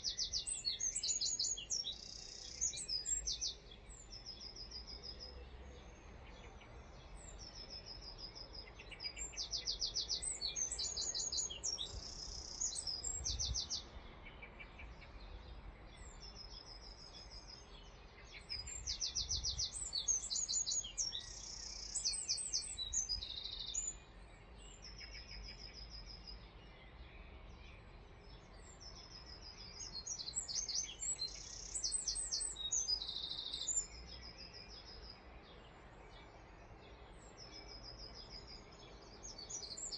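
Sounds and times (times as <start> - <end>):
songbird whistles and trills: 0.0 - 5.2.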